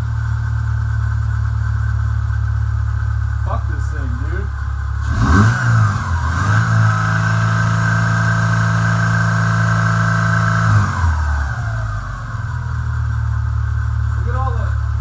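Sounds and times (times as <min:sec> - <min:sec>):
engine revving: 0:03.4 - 0:15.0.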